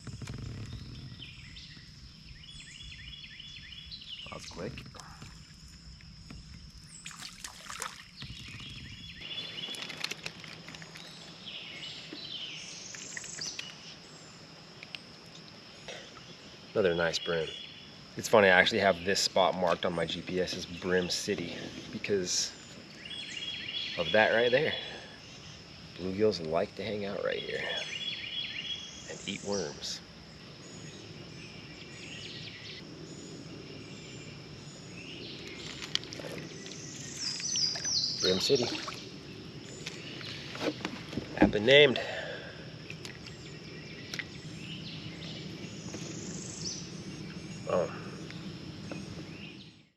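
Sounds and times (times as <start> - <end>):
steady background hiss: 0.0 - 49.8
birds calling: 0.0 - 49.9
high insect drone: 0.0 - 49.9
small clicks and knocks: 9.6 - 11.1.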